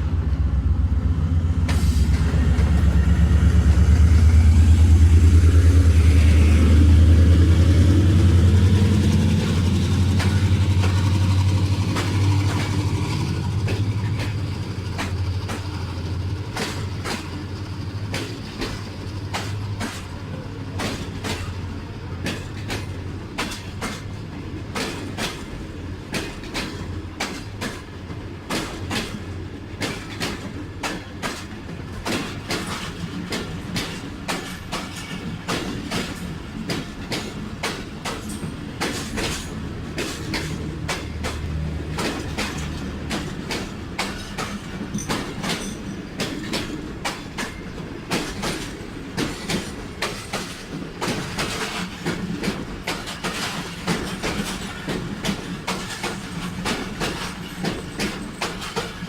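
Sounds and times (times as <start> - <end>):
locomotive engine hum: 0.0 - 59.0
train wheels clicking over rail joints: 0.0 - 59.0.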